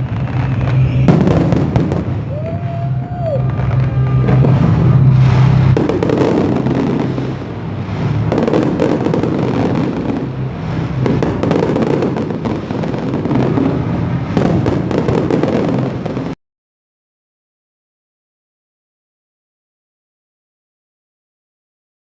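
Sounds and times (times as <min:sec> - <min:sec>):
fireworks banging and crackling: 0:00.0 - 0:16.4.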